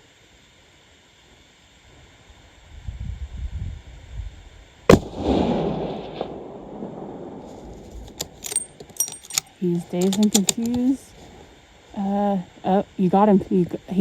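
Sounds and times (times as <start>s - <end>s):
rifle shot echoing: 4.9s - 8.8s
sharp clicks: 7.9s - 11.0s.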